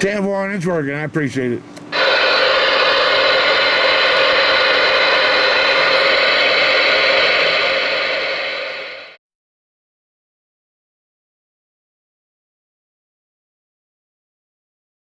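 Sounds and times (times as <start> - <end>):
radio static hiss: 1.9 - 9.2.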